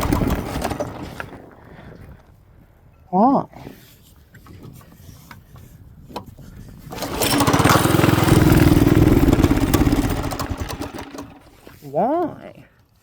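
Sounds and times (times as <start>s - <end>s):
small minibike engine running: 0.0s - 1.3s, 6.9s - 11.5s.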